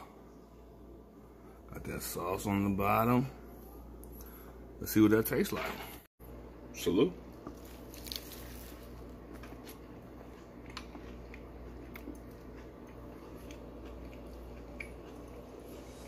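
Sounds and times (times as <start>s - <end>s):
steady low hum: 0.0s - 16.0s
person chewing food: 7.4s - 16.0s.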